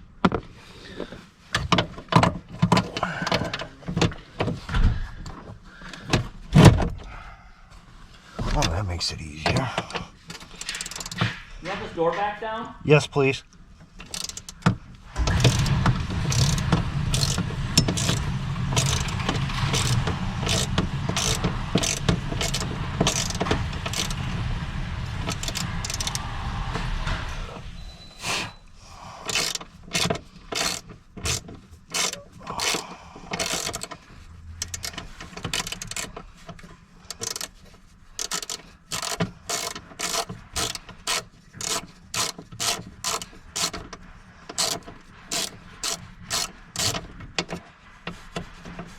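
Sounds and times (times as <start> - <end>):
ratchet wrench clicking: 10.3 - 11.2, 14.0 - 24.4, 25.1 - 26.3, 29.2 - 34.0, 34.6 - 36.2, 37.1 - 37.6, 38.2 - 43.9, 44.5 - 47.0
low rumble: 14.8 - 29.3.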